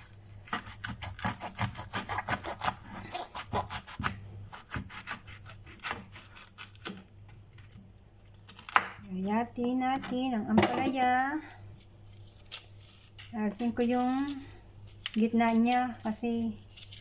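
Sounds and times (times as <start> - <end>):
knife sawing on wooden board: 0.6 - 6.2.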